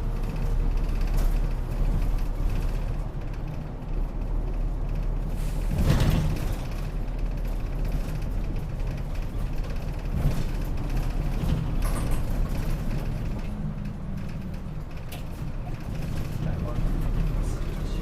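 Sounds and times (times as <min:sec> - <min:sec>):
bus engine idling: 0:00.0 - 0:18.0.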